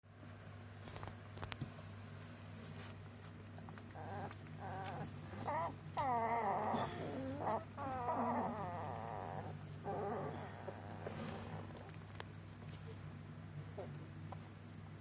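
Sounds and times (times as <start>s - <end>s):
puppies whimpering and whining: 3.7s - 12.1s.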